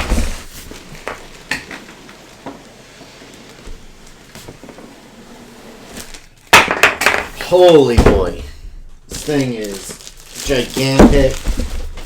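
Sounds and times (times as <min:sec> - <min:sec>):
packaging rustling: 0:09.1 - 0:12.0.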